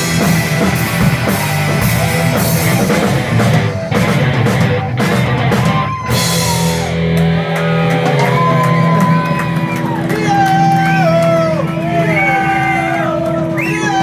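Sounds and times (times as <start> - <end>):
drum hits: 0.0 - 8.5
rock band playing live: 0.0 - 14.0.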